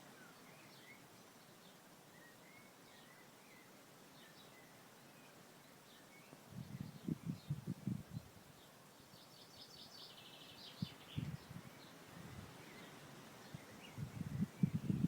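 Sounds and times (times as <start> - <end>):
wind rumble on microphone: 6.5 - 8.5, 10.7 - 12.8, 13.4 - 15.0.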